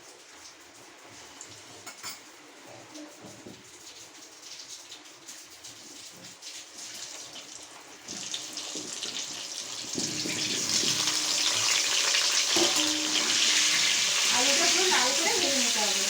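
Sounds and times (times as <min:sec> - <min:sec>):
potatoes sizzling in hot oil: 0:03.6 - 0:16.0.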